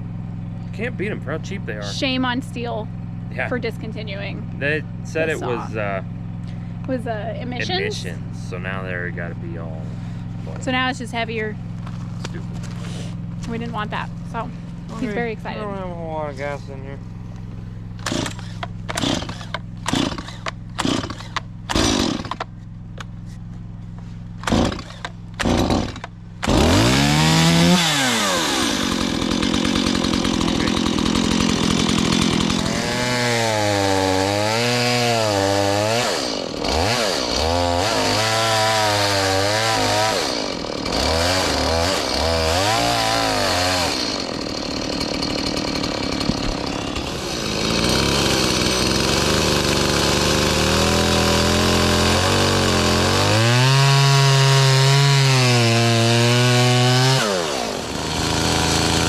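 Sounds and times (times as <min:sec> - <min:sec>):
chainsaw engine revving: 0:00.6 - 0:11.6, 0:12.2 - 0:17.0, 0:17.9 - 0:22.5, 0:24.4 - 0:59.0
starter cord pulls: 0:18.0 - 0:23.1, 0:46.2 - 0:47.1.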